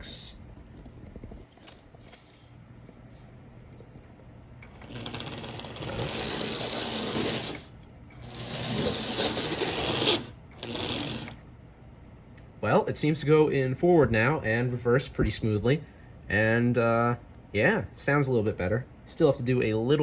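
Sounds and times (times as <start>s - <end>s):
toy train motor whirring: 4.7s - 11.4s.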